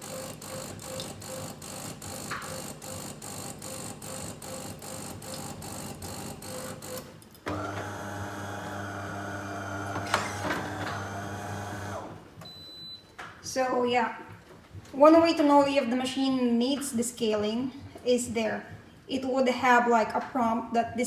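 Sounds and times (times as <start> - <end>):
coffee machine mechanical pulsing: 0.0 - 12.2
pump hum: 0.0 - 12.2.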